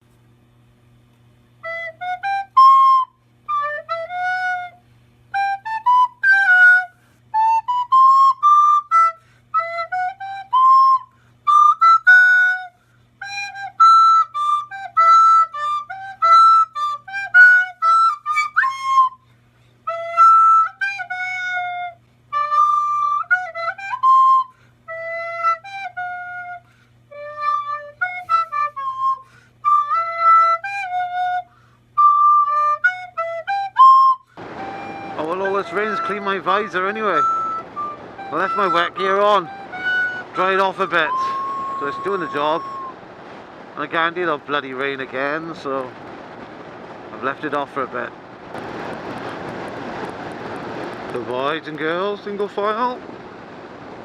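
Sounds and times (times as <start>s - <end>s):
flute-like woodwind melody: 1.6s - 43.0s.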